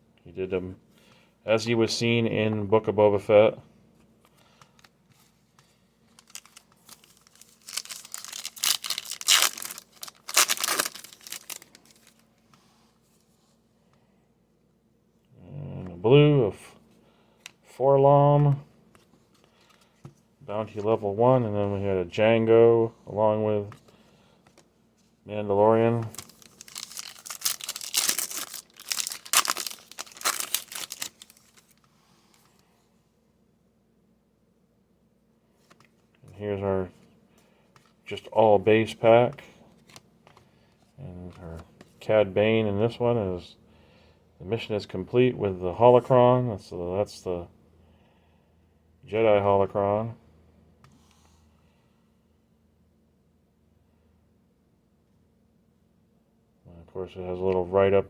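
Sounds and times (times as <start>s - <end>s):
foil wrapper tearing and crinkling: 6.2s - 12.2s, 26.1s - 31.8s.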